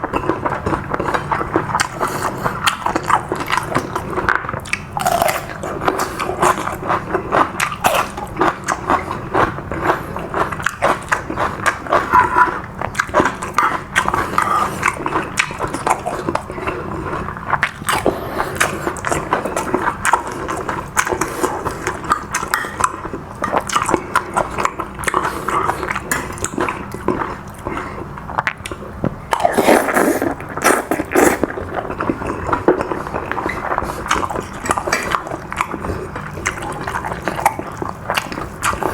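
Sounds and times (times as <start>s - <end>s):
wet chewing and lip smacks: 0.1s - 38.9s.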